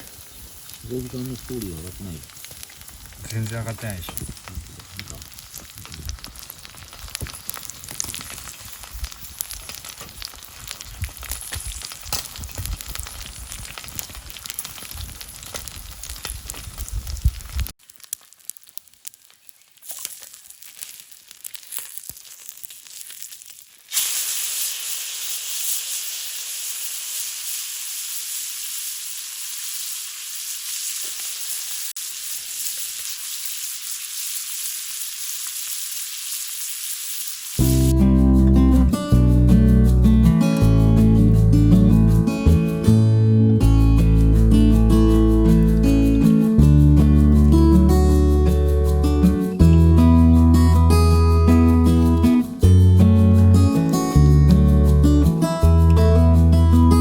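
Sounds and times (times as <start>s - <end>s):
fire crackling: 0.0s - 57.0s
steak sizzling and popping on grill: 0.0s - 57.0s.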